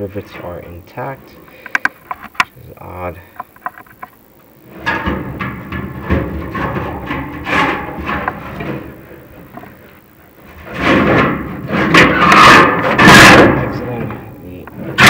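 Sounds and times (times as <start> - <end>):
rods scraping inside metal flue: 4.6 - 15.0.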